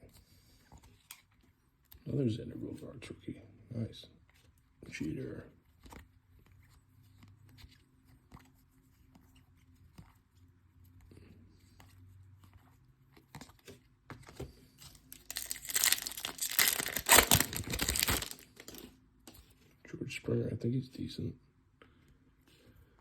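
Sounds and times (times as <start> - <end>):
cards being shuffled: 13.2 - 19.6
wrapper tearing and crinkling: 14.9 - 18.9.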